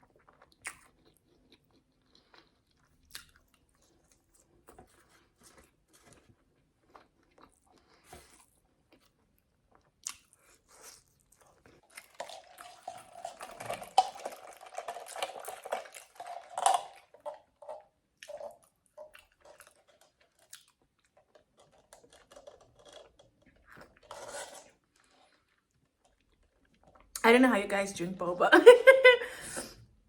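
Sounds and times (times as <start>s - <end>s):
chewing clicks: 10.0s - 24.0s
sipping through a straw: 21.6s - 25.5s.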